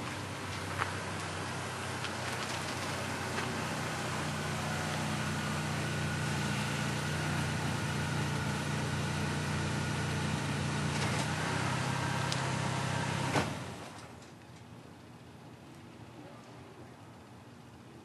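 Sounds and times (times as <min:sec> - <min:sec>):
car engine idling: 0:00.0 - 0:14.1.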